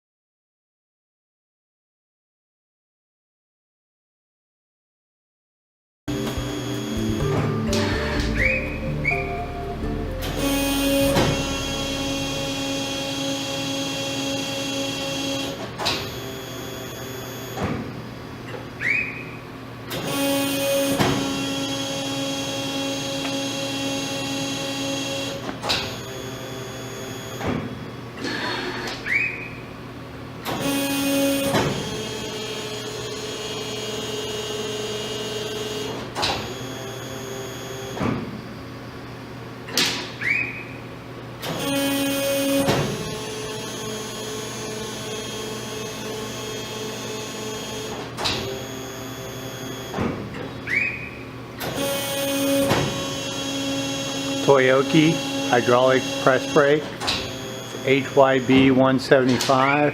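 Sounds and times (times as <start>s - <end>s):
servo motor rising whine: 6.1s - 17.6s
press brake hum and whine: 6.1s - 59.9s.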